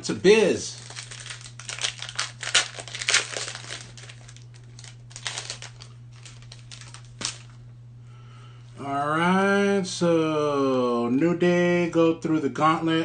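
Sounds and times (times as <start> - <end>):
wrapper tearing and crinkling: 0.7 - 7.6.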